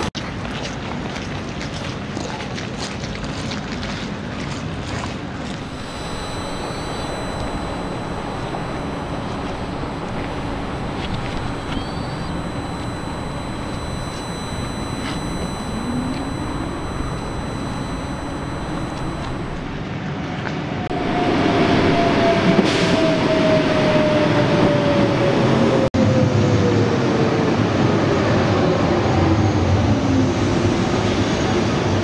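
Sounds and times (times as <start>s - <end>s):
motor whine falling in pitch: 5.6s - 19.8s, 20.9s - 25.8s.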